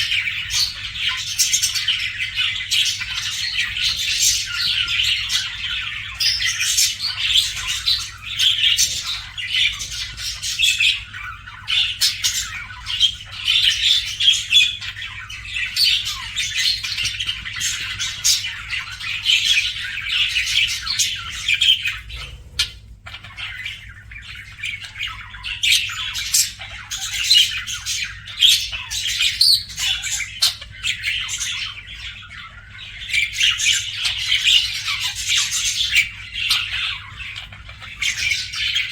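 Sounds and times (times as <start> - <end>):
budgerigar chirping and chattering: 0.0 - 38.9.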